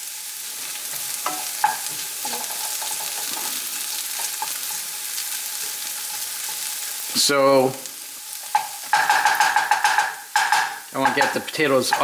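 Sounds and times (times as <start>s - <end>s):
vegetables sizzling in a pan: 0.0s - 12.0s
wooden spoon stirring: 8.4s - 12.0s.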